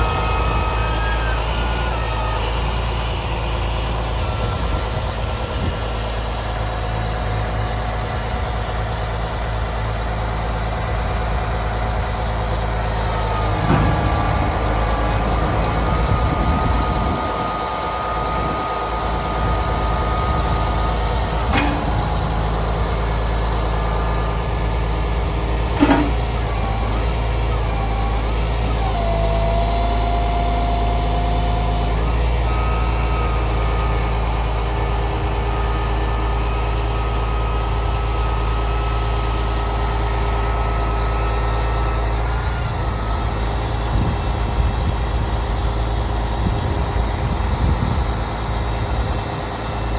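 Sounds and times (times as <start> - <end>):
wavering whine: 0.0 - 5.5, 12.9 - 44.9
truck diesel engine running: 0.0 - 49.9
short knocks: 25.8 - 26.4.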